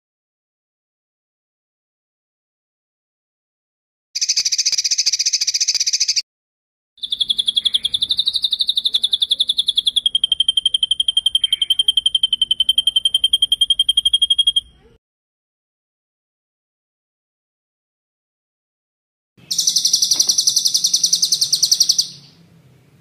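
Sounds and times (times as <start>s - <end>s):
songbird trilling: 4.2s - 6.2s, 7.0s - 14.9s, 19.4s - 22.4s.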